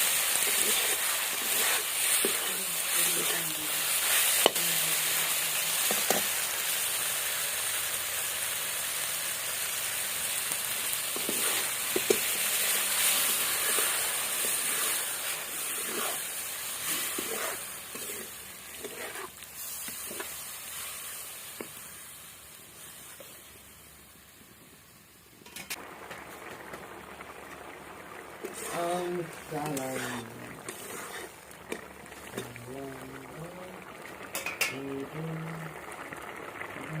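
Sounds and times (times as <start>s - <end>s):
curry sizzling in a pan: 0.0s - 37.0s.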